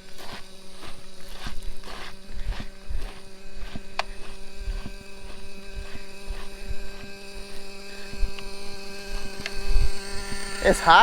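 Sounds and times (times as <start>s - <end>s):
wind buffeting microphone: 1.8s - 11.0s
engine idling: 3.0s - 11.0s.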